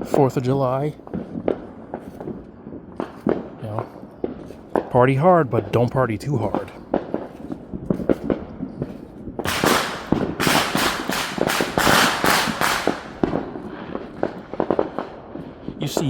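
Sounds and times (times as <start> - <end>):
fireworks popping and banging: 0.0 - 16.0.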